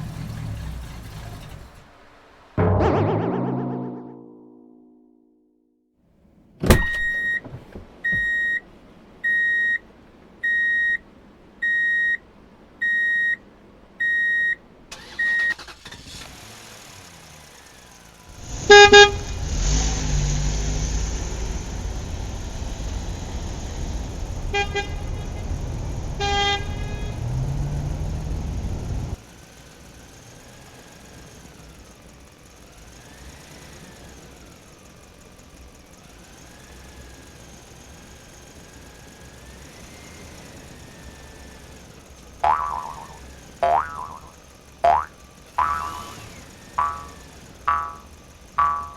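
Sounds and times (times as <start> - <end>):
toy horn honks: 18.6 - 19.4, 24.5 - 25.4, 26.2 - 27.2, 42.4 - 48.9
recorded toy engine sound: 36.0 - 48.9.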